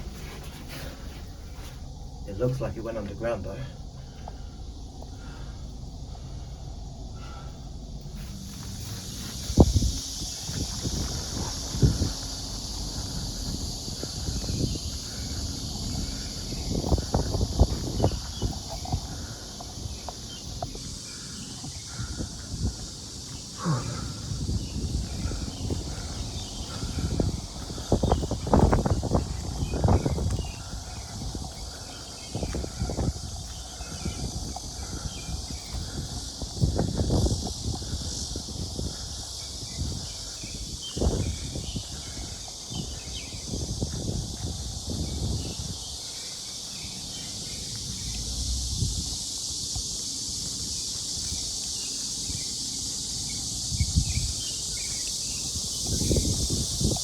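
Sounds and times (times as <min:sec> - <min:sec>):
footsteps through undergrowth: 0:00.0 - 0:02.2
outdoor hiss: 0:00.0 - 0:57.0.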